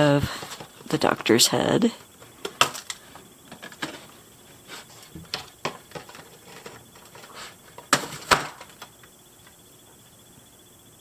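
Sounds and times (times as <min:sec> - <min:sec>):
plastic packaging clicks and crinkles: 0:02.4 - 0:04.1, 0:05.3 - 0:09.1.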